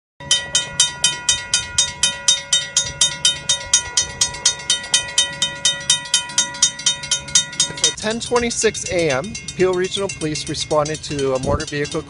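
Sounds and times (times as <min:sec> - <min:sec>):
level crossing bell ringing rapidly: 0:00.2 - 0:12.0.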